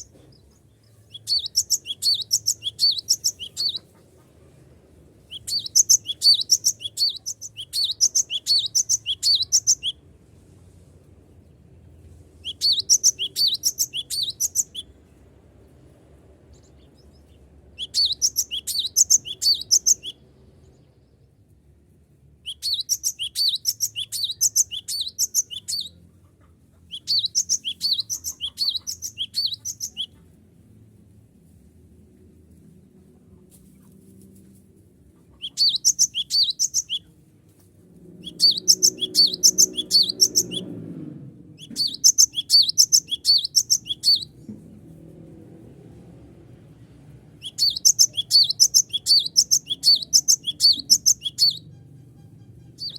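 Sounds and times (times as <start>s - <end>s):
bird chirping rapidly: 1.1s - 3.9s, 5.3s - 10.0s, 12.4s - 15.0s, 17.8s - 20.2s, 22.4s - 26.0s, 26.8s - 30.1s, 35.4s - 37.1s, 38.2s - 40.8s, 41.6s - 44.4s, 47.4s - 52.9s.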